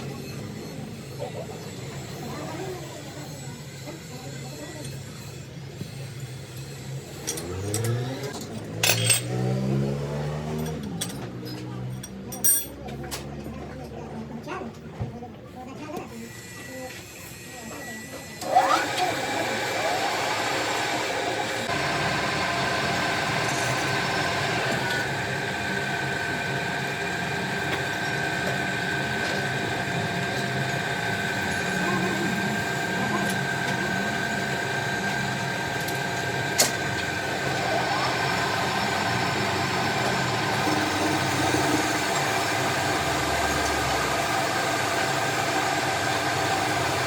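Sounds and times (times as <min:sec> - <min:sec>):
metal clinks and knocks: 0:07.2 - 0:09.3
machine motor humming: 0:18.4 - 0:47.0.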